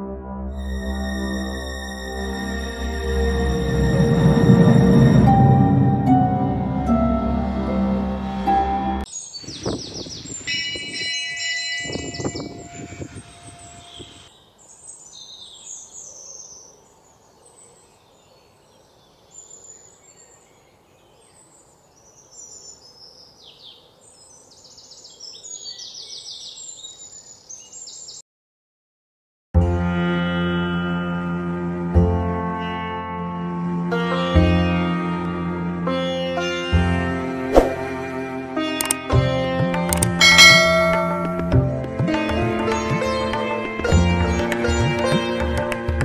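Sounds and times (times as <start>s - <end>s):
wild birds chirping: 9.1s - 10.6s, 12.2s - 28.2s.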